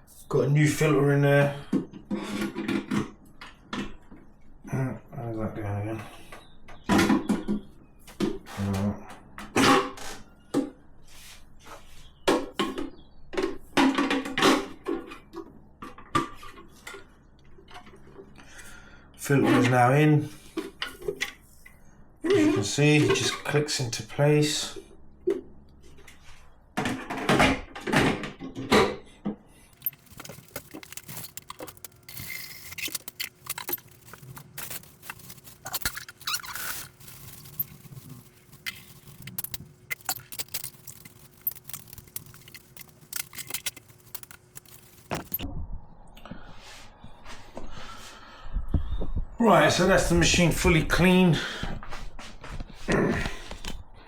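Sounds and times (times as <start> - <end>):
plastic clicks and rattles: 29.8 - 45.4.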